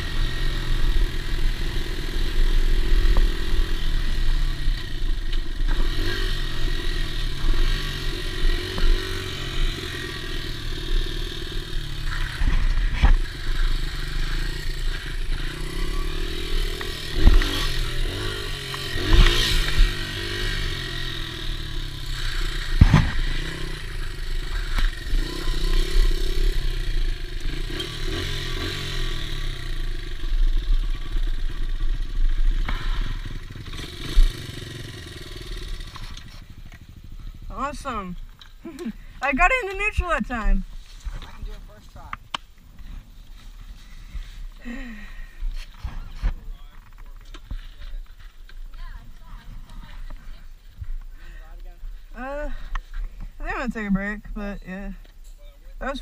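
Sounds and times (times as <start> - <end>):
dirt bike engine revving: 0.0 - 40.6, 43.3 - 46.1.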